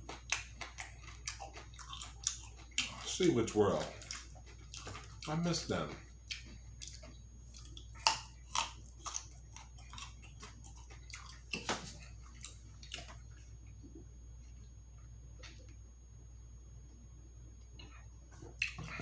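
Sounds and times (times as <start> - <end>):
person chewing and crunching: 0.0 - 13.6, 17.8 - 19.0.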